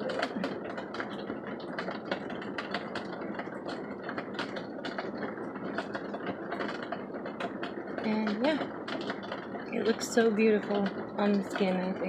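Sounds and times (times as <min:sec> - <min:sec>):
heavy rain pattering: 0:00.0 - 0:12.0.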